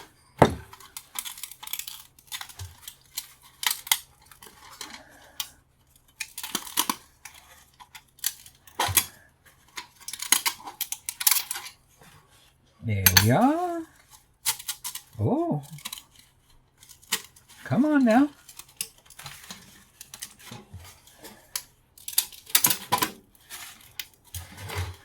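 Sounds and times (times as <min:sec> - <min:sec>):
dull knocks: 0:00.4 - 0:00.7.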